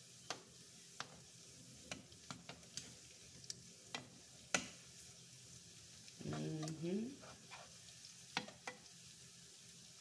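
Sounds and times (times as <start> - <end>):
fries sizzling in oil: 0.0 - 10.0
tongs clicking against pan: 1.9 - 4.8, 6.1 - 6.8, 8.4 - 8.9.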